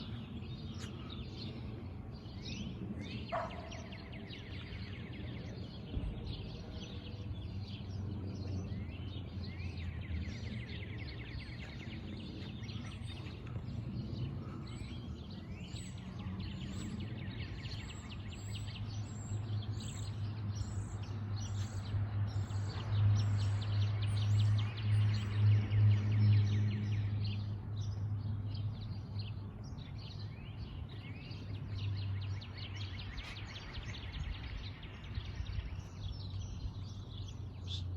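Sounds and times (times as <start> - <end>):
low droning hum: 0.0 - 21.0
songbirds chirping and trilling: 0.0 - 37.9.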